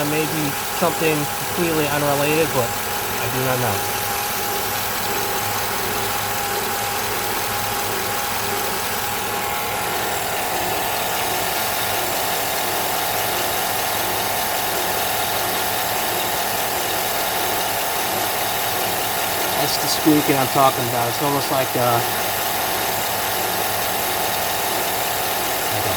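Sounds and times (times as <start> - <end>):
car engine idling: 0.0 - 13.2
low-pitched squeaking buzz: 25.5 - 25.9.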